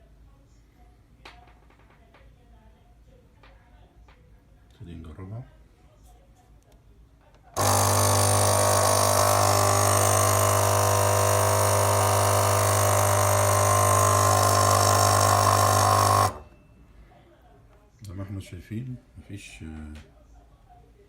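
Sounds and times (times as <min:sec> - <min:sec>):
espresso machine pump buzzing: 0:07.6 - 0:16.5.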